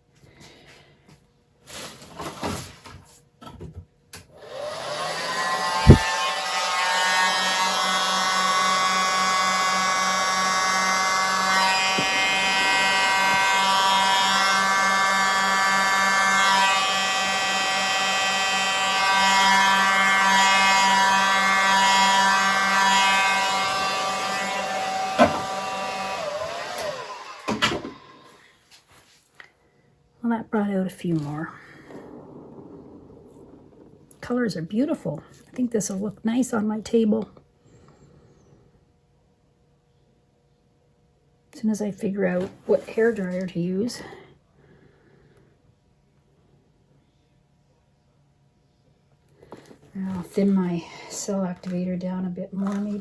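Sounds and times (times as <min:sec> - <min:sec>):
hairdryer running: 0:04.2 - 0:28.6, 0:52.6 - 0:53.0.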